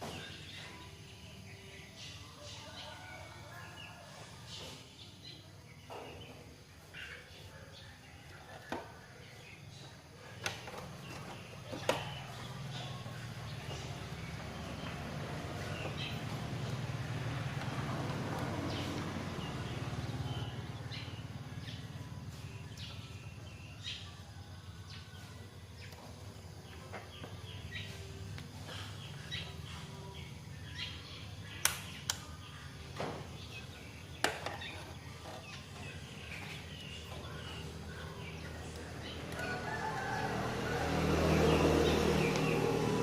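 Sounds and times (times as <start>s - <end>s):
birds chirping: 0.0s - 43.0s
sharp clicks: 31.6s - 32.3s.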